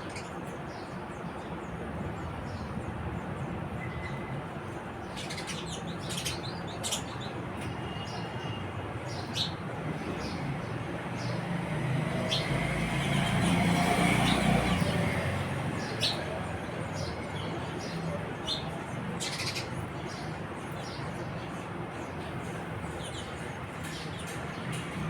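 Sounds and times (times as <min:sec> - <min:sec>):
sparrows chirping: 0:00.0 - 0:25.0.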